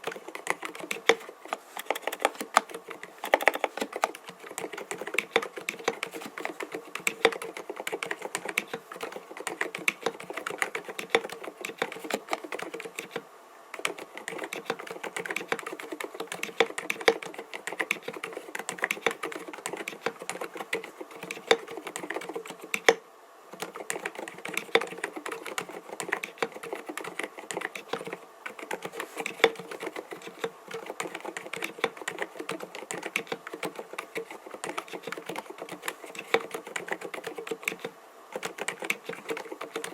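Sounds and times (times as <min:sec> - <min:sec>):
fast typing on mechanical keyboard: 0:00.0 - 0:23.0, 0:23.6 - 0:39.9.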